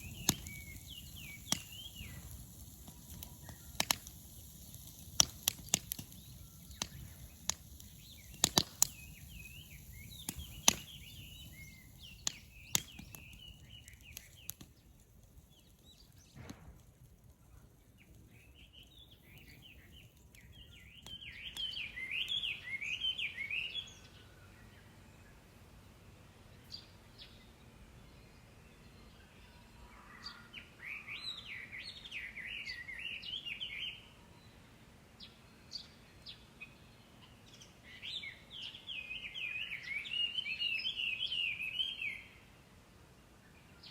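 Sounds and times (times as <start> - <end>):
bird singing whistled phrases: 0.0 - 5.0, 5.6 - 14.5, 20.5 - 24.0, 38.0 - 42.4
sharp cracks: 0.0 - 22.4.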